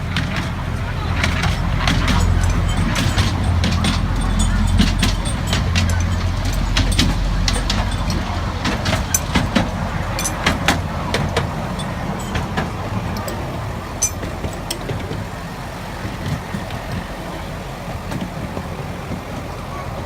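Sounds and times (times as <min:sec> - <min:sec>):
miniature train rumble: 0:00.0 - 0:20.0
clicks and knocks: 0:00.1 - 0:15.3.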